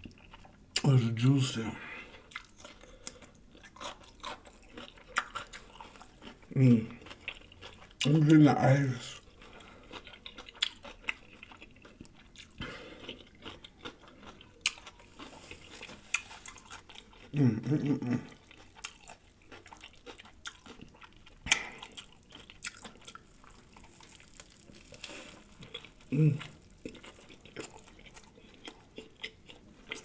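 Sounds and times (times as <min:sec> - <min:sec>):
close chewing with mouth smacks: 0:00.0 - 0:00.9, 0:02.1 - 0:08.4, 0:09.0 - 0:30.0
person humming: 0:26.1 - 0:26.5.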